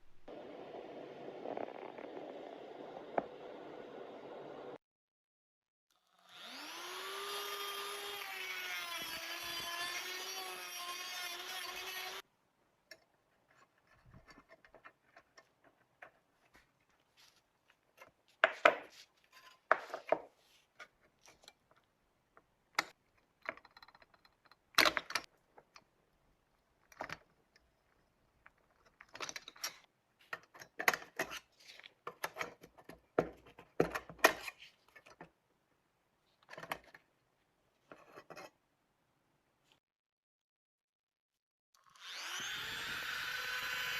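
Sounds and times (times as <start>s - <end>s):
small electric motor whirring: 6.0s - 12.2s, 41.8s - 43.9s
hand tool scraping and clicking: 37.9s - 38.6s.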